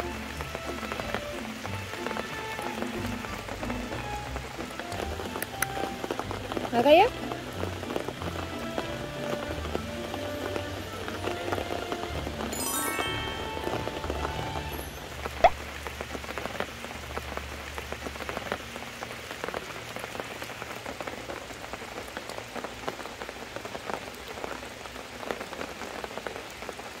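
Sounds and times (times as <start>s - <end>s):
water drips: 0.0s - 24.4s
rain pattering: 0.0s - 27.0s
sharp water drop: 14.8s - 15.6s.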